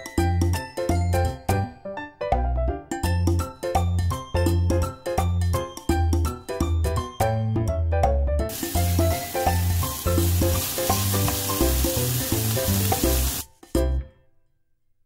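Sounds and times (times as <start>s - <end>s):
background music: 0.0s - 14.5s
food sizzling in frying pan: 8.5s - 13.5s.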